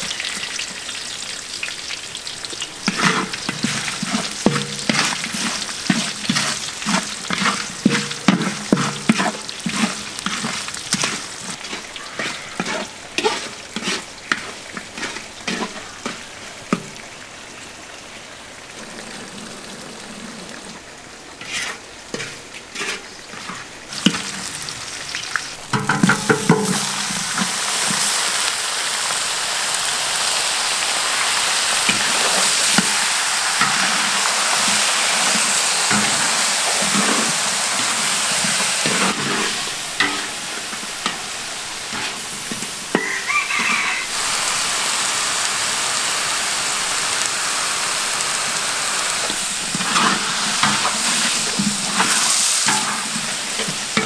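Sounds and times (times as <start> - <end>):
herbs sizzling in a wok: 0.0 - 18.7, 20.1 - 54.0
wooden stick scraping a wok: 2.8 - 16.8, 21.4 - 24.5, 25.7 - 28.2, 31.8 - 44.5, 49.1 - 54.0.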